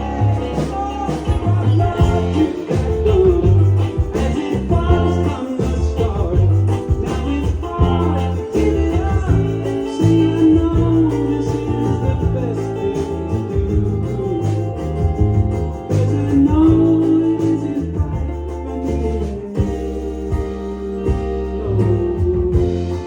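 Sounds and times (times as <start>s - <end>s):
live band music: 0.0s - 23.0s.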